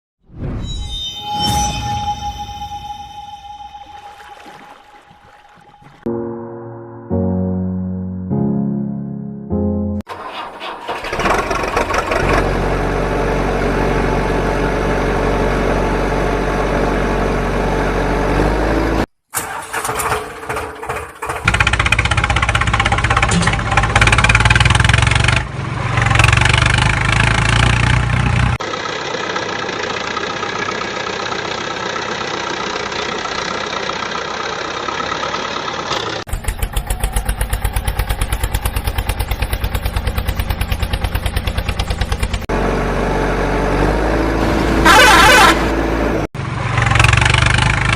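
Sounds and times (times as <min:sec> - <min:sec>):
engine droning: 0:10.1 - 0:47.9.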